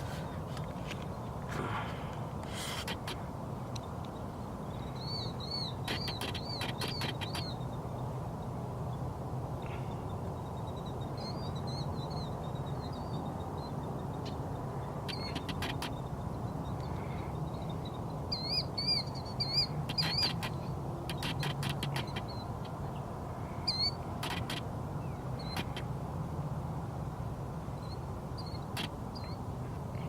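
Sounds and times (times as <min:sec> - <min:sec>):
birds chirping: 0:02.8 - 0:09.0, 0:09.6 - 0:26.0.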